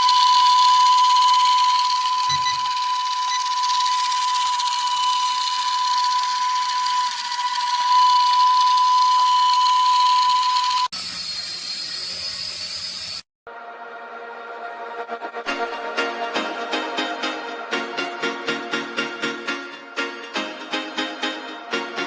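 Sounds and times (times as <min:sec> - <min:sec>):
toy helicopter motor whining: 0:00.0 - 0:13.2.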